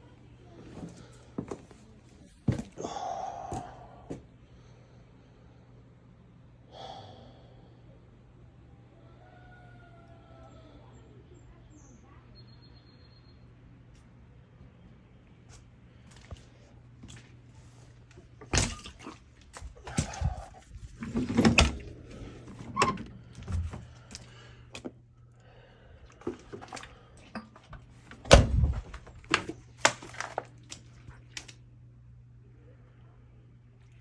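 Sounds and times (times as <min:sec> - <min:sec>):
faint low hum: 0:00.0 - 0:34.0
knocks and thuds of objects: 0:28.1 - 0:30.2.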